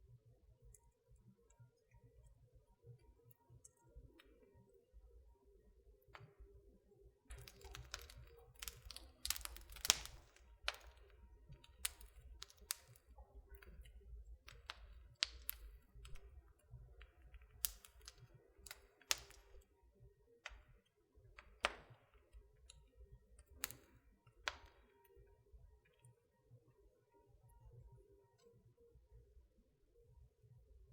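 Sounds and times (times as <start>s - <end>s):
wood fire crackling: 7.2s - 19.8s, 20.4s - 25.3s.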